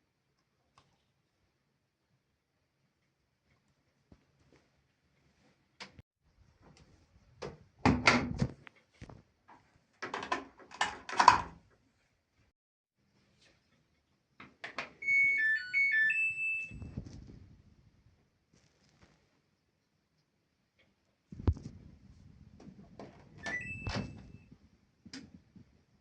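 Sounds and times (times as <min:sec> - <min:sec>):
washing machine melody of beeps: 0:15.0 - 0:17.0, 0:23.4 - 0:24.5.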